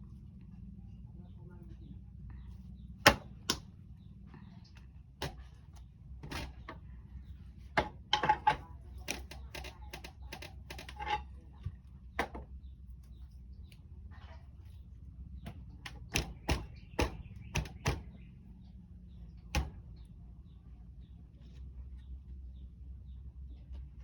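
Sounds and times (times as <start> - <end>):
low steady hum: 0.0 - 24.0
wooden mallet striking clay: 3.0 - 3.7, 5.2 - 5.5, 7.8 - 10.9, 15.4 - 18.2, 19.5 - 19.9.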